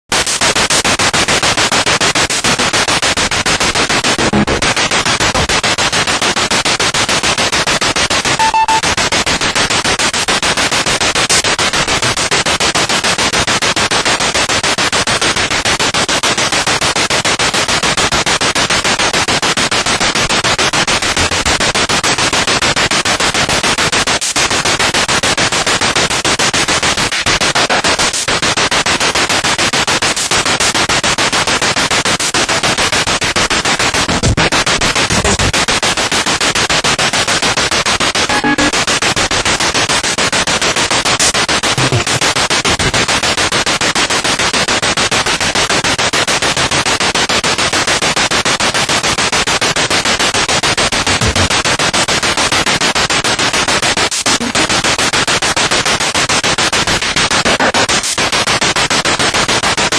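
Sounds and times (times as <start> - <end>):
radio static fluttering: 0.1 - 59.9
short beep tone: 8.4 - 8.9, 38.3 - 38.7.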